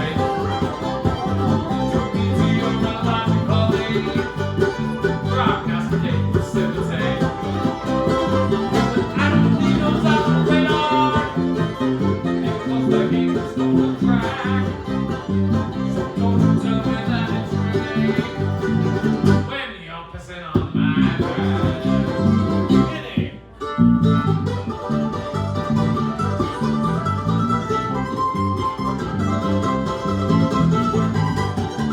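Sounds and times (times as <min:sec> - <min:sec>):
bluegrass band playing: 0:00.0 - 0:19.7, 0:20.6 - 0:31.9
pulsing low bass line: 0:20.8 - 0:22.9.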